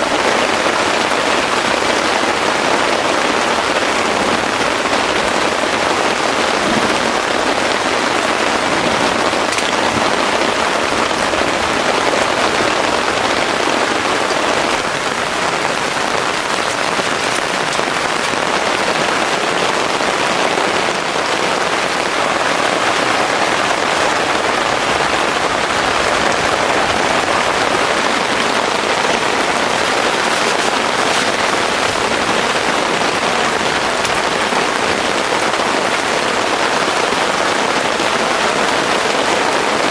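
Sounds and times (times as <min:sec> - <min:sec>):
raindrop ticks: 0:00.0 - 0:23.1, 0:24.1 - 0:35.7
heavy rain pouring: 0:00.0 - 0:39.9.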